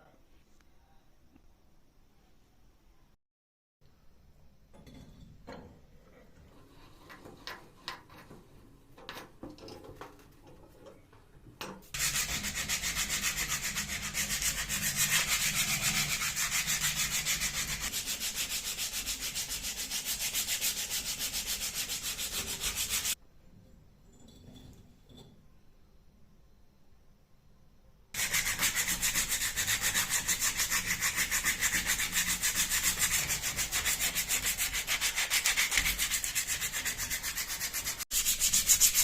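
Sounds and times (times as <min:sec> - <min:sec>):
sanding rusty metal: 0:12.0 - 0:23.2, 0:28.2 - 0:39.0.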